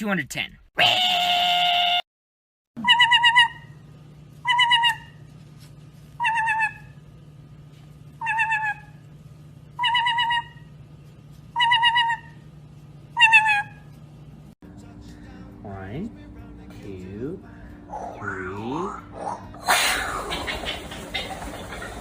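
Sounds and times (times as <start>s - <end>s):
parrot quavering call: 2.8s - 3.8s, 4.4s - 5.2s, 6.2s - 7.0s, 8.2s - 9.0s, 9.8s - 10.7s, 11.6s - 12.4s, 13.2s - 13.8s, 19.2s - 22.0s
steady low hum: 2.8s - 22.0s.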